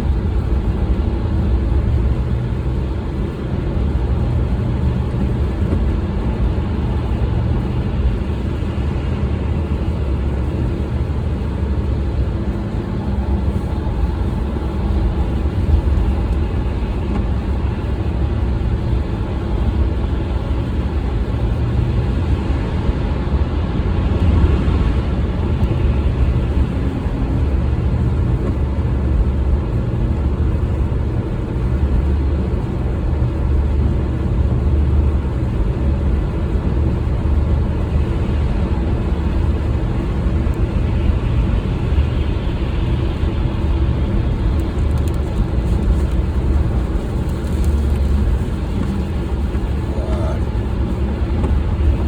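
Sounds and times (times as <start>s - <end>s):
car engine and road rumble: 0.0s - 52.0s.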